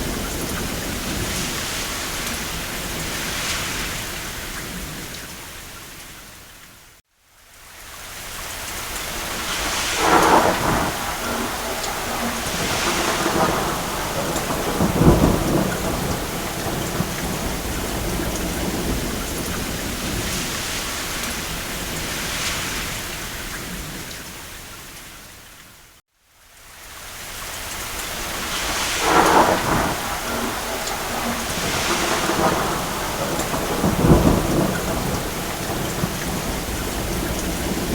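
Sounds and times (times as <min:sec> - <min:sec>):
rain on a roof: 0:00.0 - 0:37.9
distant thunder rolling: 0:09.1 - 0:24.1, 0:28.0 - 0:37.9.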